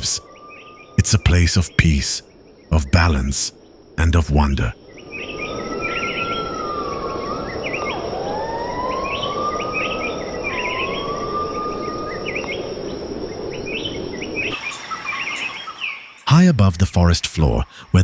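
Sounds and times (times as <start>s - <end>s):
insects hissing: 0.0s - 16.5s
long wavering whistled tone: 5.1s - 13.8s.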